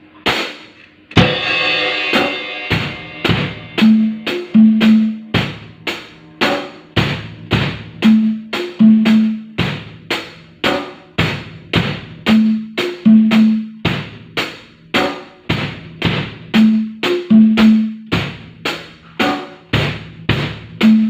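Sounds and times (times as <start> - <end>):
drum kit beat: 0.1 - 21.0
held low notes: 2.7 - 9.9, 12.2 - 14.2.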